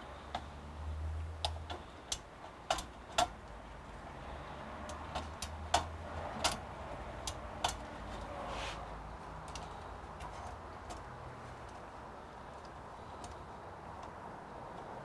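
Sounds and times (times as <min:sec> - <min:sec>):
small hardware clicking: 0:01.4 - 0:03.4.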